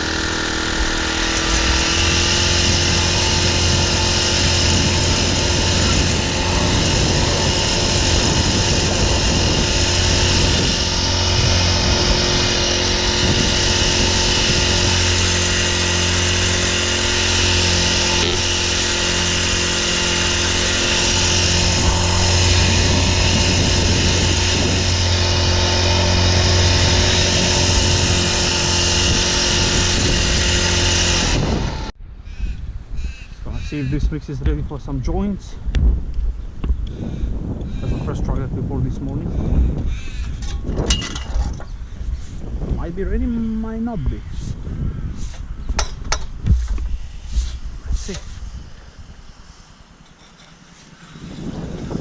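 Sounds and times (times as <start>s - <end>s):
small engine machine running: 0.0s - 32.0s.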